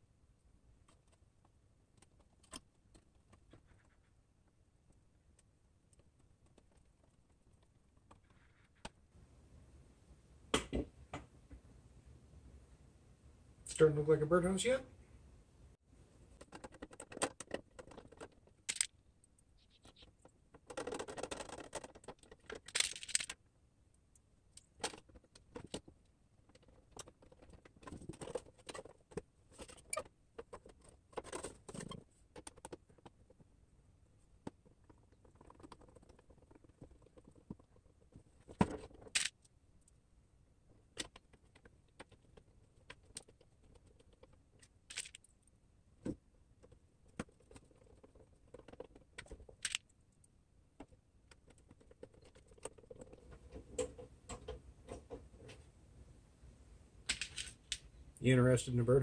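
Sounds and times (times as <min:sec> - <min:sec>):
screws rattling: 0:16.4 - 0:18.9, 0:19.8 - 0:23.4, 0:34.6 - 0:39.5, 0:41.0 - 0:45.5, 0:46.6 - 0:49.9.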